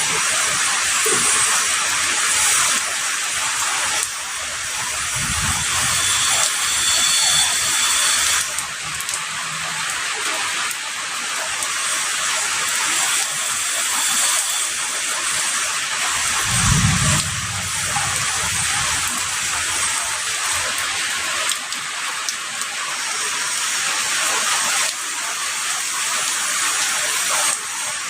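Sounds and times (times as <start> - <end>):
heavy rain: 0.0 - 28.0
distant thunder: 16.3 - 20.0.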